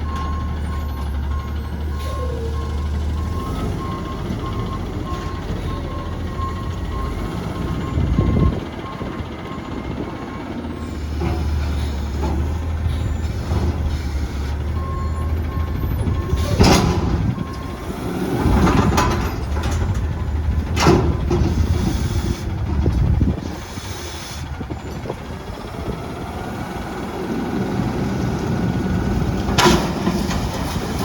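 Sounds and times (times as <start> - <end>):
backup alarm beeping: 0.0 - 10.5
diesel engine running: 0.0 - 31.0.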